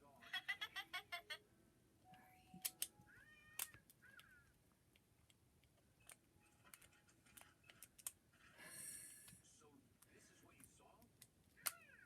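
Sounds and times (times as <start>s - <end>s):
faint clicks and taps: 2.1s - 8.4s
cat meowing: 3.1s - 4.5s.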